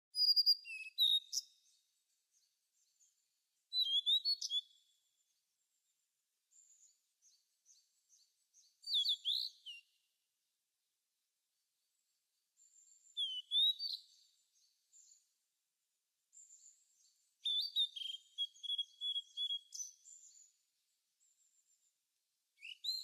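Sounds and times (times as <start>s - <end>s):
birds chirping and whistling: 0.2s - 1.6s, 3.7s - 4.8s, 7.2s - 9.9s, 13.0s - 15.2s, 17.4s - 20.5s, 22.6s - 23.0s.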